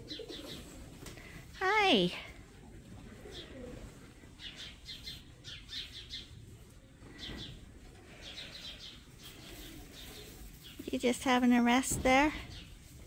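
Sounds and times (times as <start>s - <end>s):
birds chirping: 0.0s - 1.4s, 3.2s - 12.8s
barn background noise: 0.0s - 13.0s.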